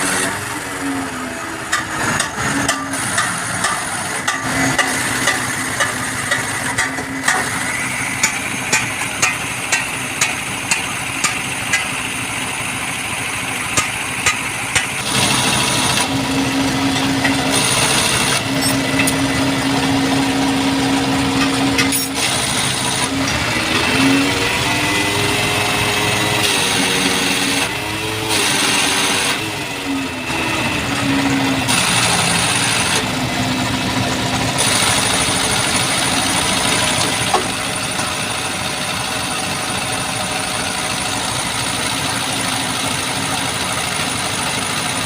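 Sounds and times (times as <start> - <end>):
steady mechanical noise: 0.0 - 45.0
regular sharp taps: 8.2 - 11.9.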